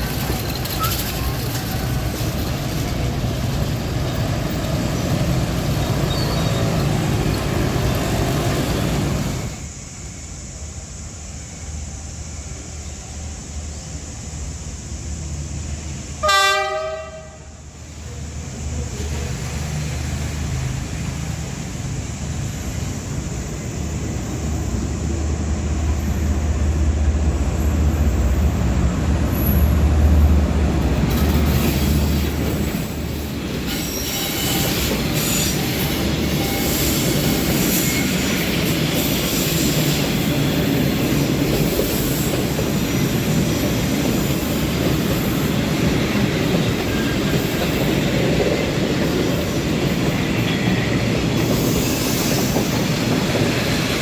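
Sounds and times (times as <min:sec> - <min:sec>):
wheel squeals: 0:00.0 - 0:02.9, 0:03.8 - 0:09.0, 0:32.6 - 0:47.8
wagons rattling: 0:00.0 - 0:04.6
locomotive engine rumble: 0:00.0 - 0:09.8
train horn blast: 0:16.2 - 0:17.6.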